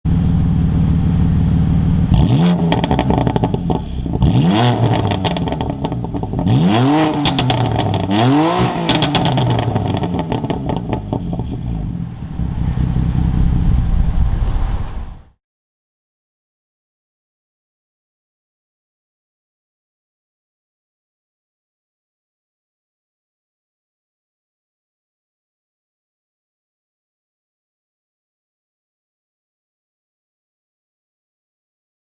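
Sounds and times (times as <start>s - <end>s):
car engine idling and revving: 0.1s - 15.4s
exhaust pops and crackles: 2.1s - 6.5s, 7.2s - 8.2s, 8.8s - 15.3s.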